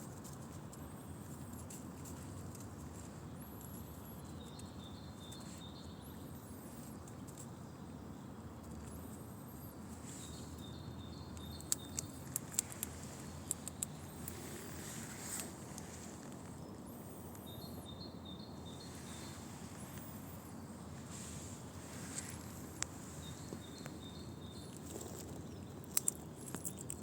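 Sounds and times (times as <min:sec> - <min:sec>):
small birds calling: 0:00.0 - 0:27.0
sharp clicks: 0:11.3 - 0:14.2.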